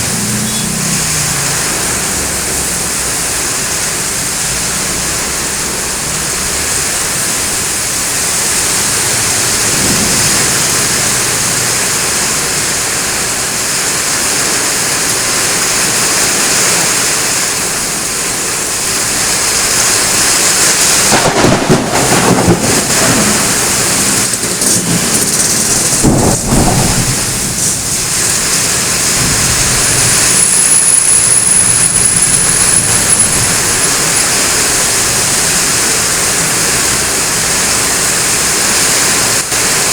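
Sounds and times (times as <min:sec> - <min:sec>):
heavy rain falling: 0:00.0 - 0:39.9
thunder rumbling: 0:05.4 - 0:16.0, 0:18.9 - 0:39.9.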